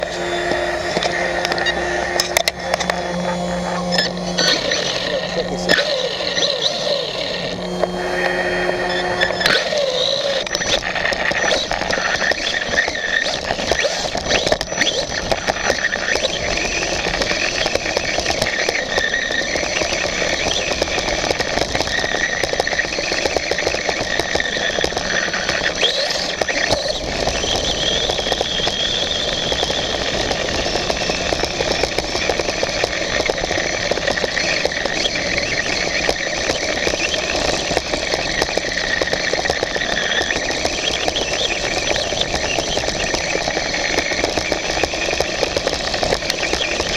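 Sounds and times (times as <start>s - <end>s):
steady rushing noise: 0.0s - 21.8s
toy motorbike drivetrain whine: 0.0s - 46.9s.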